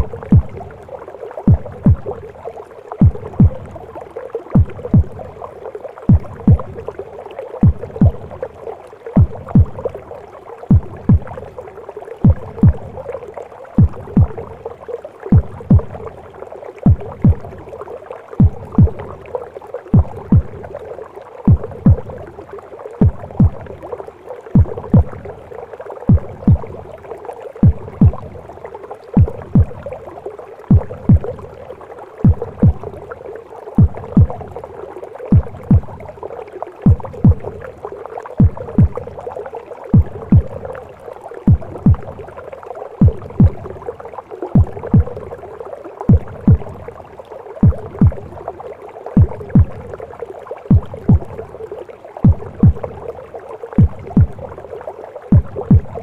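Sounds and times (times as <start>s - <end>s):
heartbeat thumps: 0.0s - 0.8s, 1.5s - 2.3s, 3.0s - 3.9s, 4.6s - 7.0s, 7.6s - 8.5s, 9.2s - 10.1s, 10.7s - 11.6s, 12.2s - 13.2s, 13.8s - 14.7s, 15.3s - 16.2s, 16.8s - 17.8s, 18.4s - 19.3s, 19.9s - 20.8s, 21.5s - 22.4s, 23.0s - 23.9s, 24.6s - 25.5s, 26.1s - 27.0s, 27.6s - 33.1s, 33.8s - 34.7s, 35.3s - 36.2s, 36.8s - 37.8s, 38.4s - 39.3s, 39.9s - 40.8s, 41.5s - 42.3s, 43.0s - 43.9s, 44.6s - 45.4s, 46.1s - 47.0s, 47.6s - 48.4s, 49.2s - 50.0s, 50.7s - 51.6s, 52.2s - 53.1s, 53.8s - 54.6s, 55.3s - 56.0s
muffled womb rushing: 0.0s - 14.7s, 18.4s - 20.8s, 21.4s - 25.5s, 26.1s - 30.0s, 30.6s - 33.1s, 33.8s - 34.6s, 35.3s - 36.2s, 36.8s - 42.4s, 43.0s - 43.9s, 44.5s - 45.4s, 52.2s - 53.1s, 55.3s - 56.0s.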